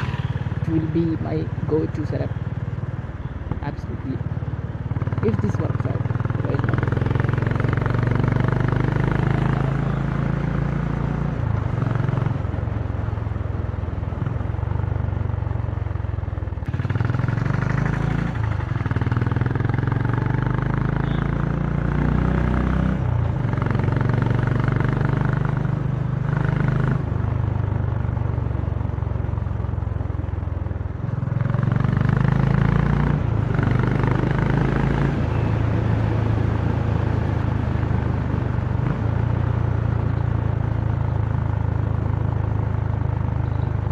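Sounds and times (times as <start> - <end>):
motorcycle engine revving: 0.0 - 12.9, 16.6 - 30.0, 30.9 - 43.9.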